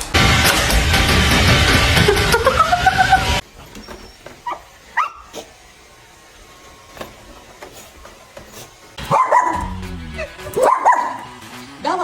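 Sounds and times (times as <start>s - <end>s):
dog whining and yipping: 3.6s - 5.5s, 8.5s - 11.3s
background music: 9.0s - 12.0s.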